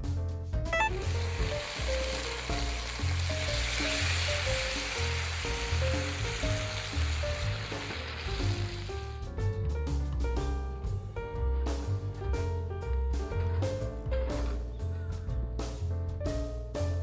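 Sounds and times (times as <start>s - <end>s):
food sizzling in a hot pan: 0.8s - 9.2s.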